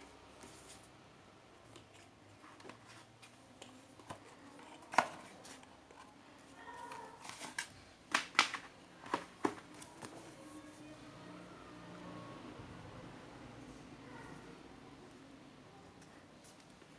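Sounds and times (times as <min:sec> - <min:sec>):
clicks and taps of plastic packaging: 0:06.8 - 0:10.2.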